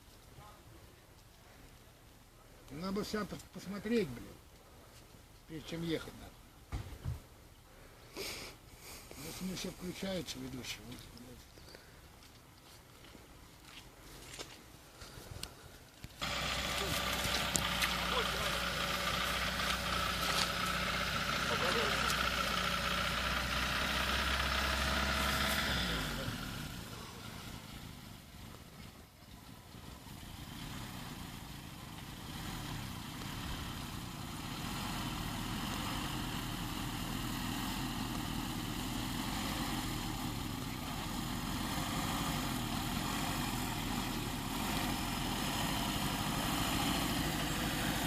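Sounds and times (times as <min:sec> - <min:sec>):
car engine running: 0:16.2 - 0:48.0.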